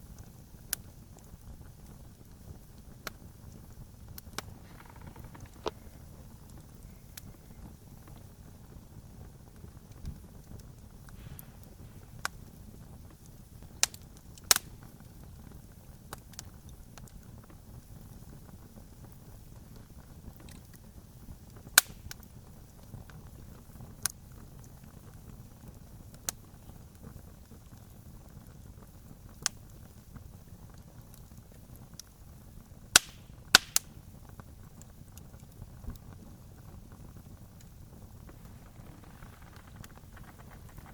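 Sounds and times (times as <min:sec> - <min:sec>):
campfire crackling and popping: 0:00.0 - 0:40.9
low rumble: 0:04.4 - 0:06.4, 0:11.2 - 0:13.0, 0:37.9 - 0:40.9
sharp loud pops: 0:11.1 - 0:12.6, 0:33.0 - 0:34.0.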